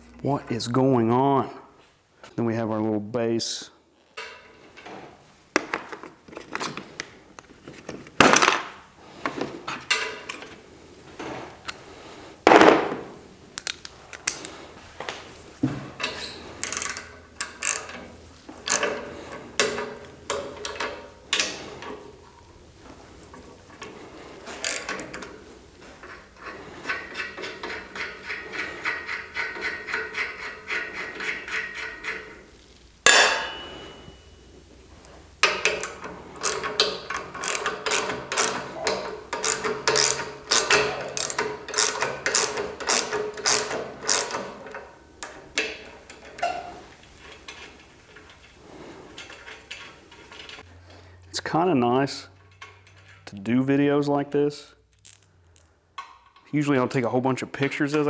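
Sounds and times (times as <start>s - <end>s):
hand tools clanking on metal: 4.2s - 53.6s
ratchet wrench clicking: 16.0s - 18.0s, 18.6s - 21.6s, 24.6s - 25.2s, 35.4s - 44.8s.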